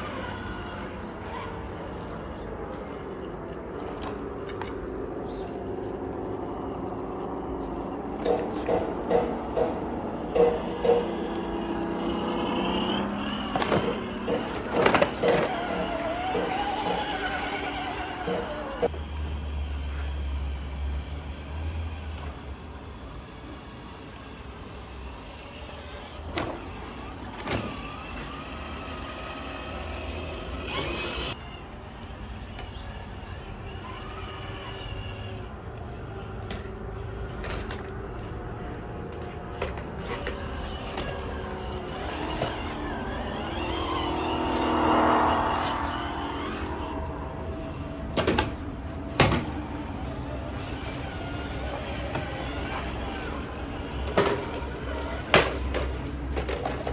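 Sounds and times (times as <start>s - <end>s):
electric motor and gears whining: 0.0s - 56.9s
tyres and chassis knocking: 6.1s - 19.0s.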